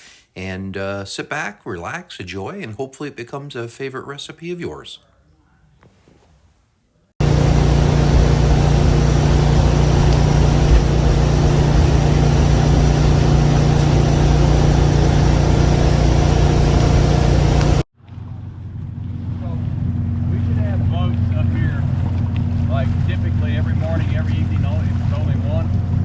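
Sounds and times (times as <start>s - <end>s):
engine running with low hum: 7.2s - 26.0s.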